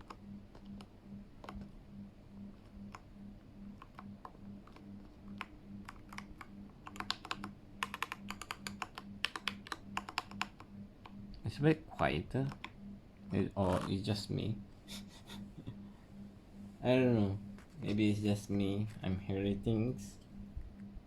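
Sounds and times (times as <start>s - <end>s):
mechanical keyboard typing: 0.0s - 1.7s, 3.8s - 10.7s.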